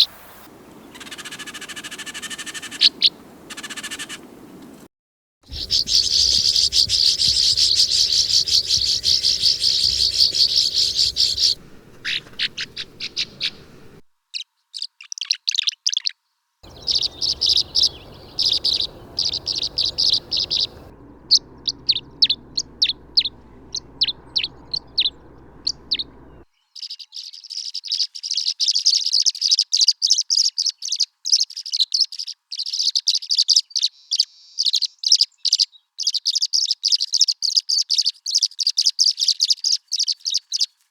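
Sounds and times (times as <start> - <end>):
swallows twittering and chirping: 5.5 - 14.0, 16.6 - 26.4.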